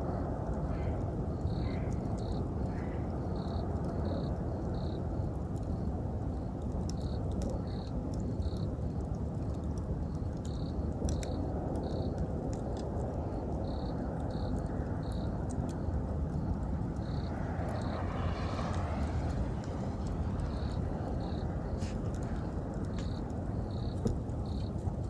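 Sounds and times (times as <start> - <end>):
wood fire crackling and popping: 0.0 - 25.0
insect chirping: 13.6 - 25.0
low rumble: 15.8 - 25.0.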